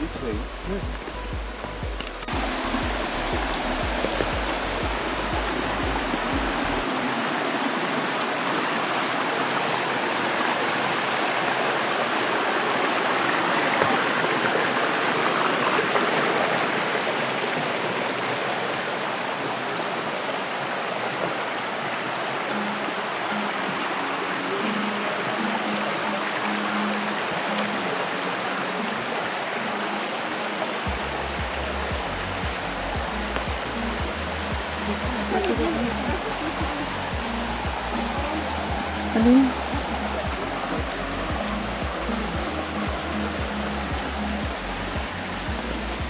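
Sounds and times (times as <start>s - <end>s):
low music beat: 0.0s - 7.1s, 30.9s - 46.0s
water rushing in rocky stream: 0.0s - 46.0s.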